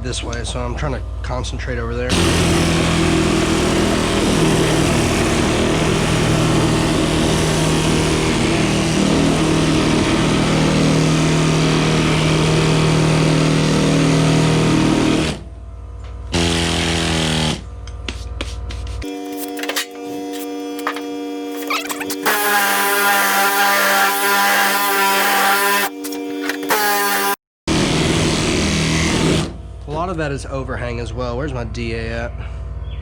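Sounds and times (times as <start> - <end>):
power sander sanding: 2.1 - 15.4, 19.0 - 29.5.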